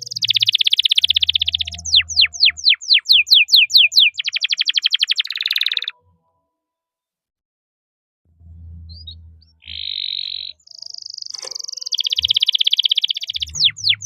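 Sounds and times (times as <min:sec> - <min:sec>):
canary singing: 0:00.0 - 0:06.0, 0:08.8 - 0:14.0.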